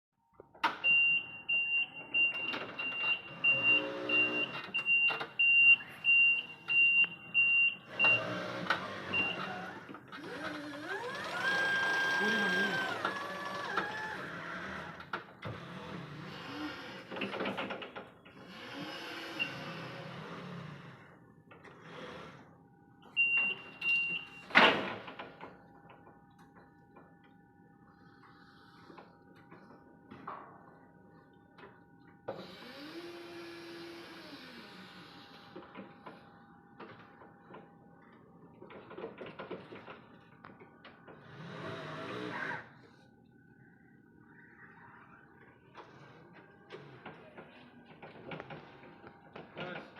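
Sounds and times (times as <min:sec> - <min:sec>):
electric motor whirring: 0:07.9 - 0:17.2, 0:32.4 - 0:35.4.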